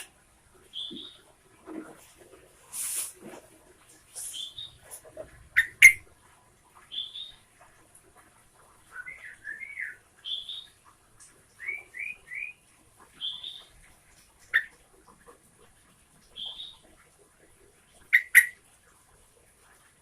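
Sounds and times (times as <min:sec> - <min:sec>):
bird singing whistled notes: 0:08.9 - 0:10.7, 0:11.6 - 0:12.6.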